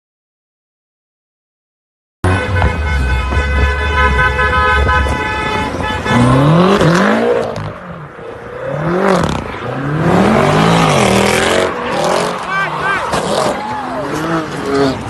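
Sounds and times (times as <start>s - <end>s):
car horn: 2.2s - 7.2s
car engine revving: 2.5s - 15.0s.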